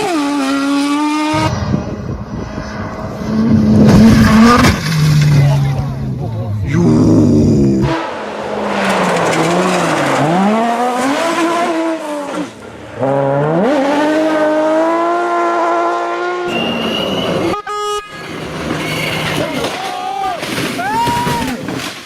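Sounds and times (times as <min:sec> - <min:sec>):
rally car engine revving: 0:00.0 - 0:17.5.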